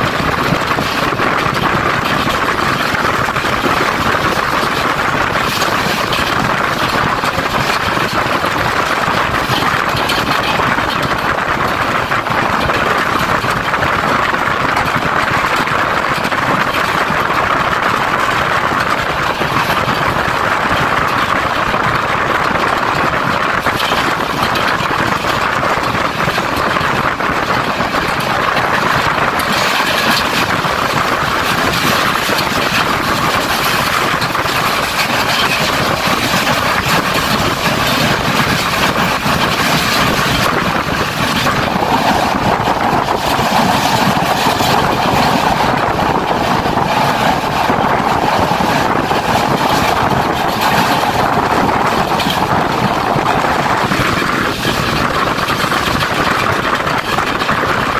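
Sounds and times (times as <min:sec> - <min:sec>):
train wheels on rails: 0:00.0 - 0:57.9
wind rushing: 0:00.0 - 0:57.9.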